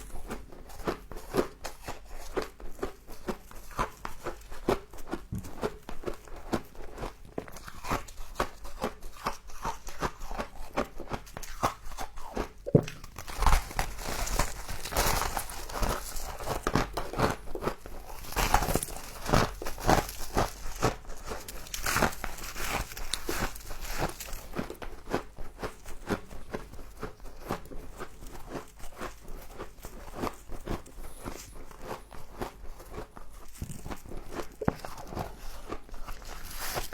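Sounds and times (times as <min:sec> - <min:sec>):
frost being crunched and chewed: 0:00.0 - 0:36.9
crunching frost: 0:13.1 - 0:26.5.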